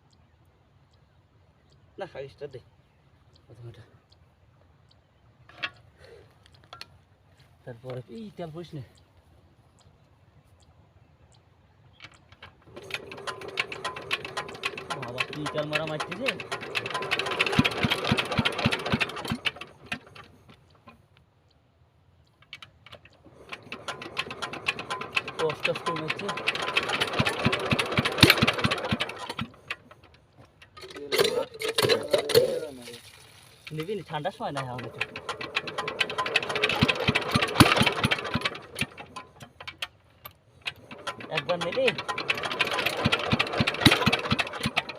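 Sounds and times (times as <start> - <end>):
faint clicks: 0.0 - 16.8, 19.0 - 21.6, 22.2 - 26.7
water pump engine beating: 12.6 - 21.0, 23.0 - 39.9, 40.6 - 44.9.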